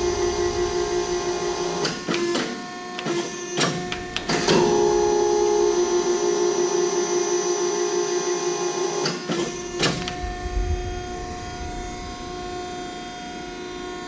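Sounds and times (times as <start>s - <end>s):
low rumble: 0.0s - 2.1s, 10.0s - 14.0s
hydraulic pump humming: 0.0s - 13.8s.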